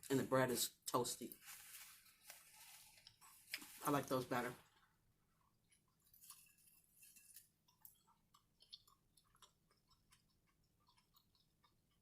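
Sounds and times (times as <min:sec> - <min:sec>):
faint chewing: 0:01.8 - 0:03.8, 0:04.6 - 0:12.0.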